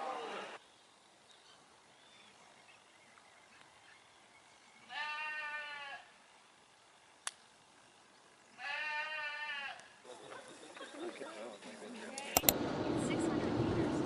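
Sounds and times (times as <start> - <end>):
animal bleating cry: 4.8 - 6.2, 8.6 - 9.9
sharp click: 12.4 - 12.6.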